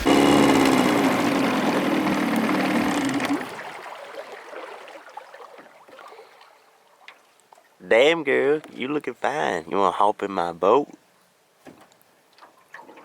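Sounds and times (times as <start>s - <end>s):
boat motor running: 0.0s - 3.7s
water rushing along hull: 0.0s - 6.8s.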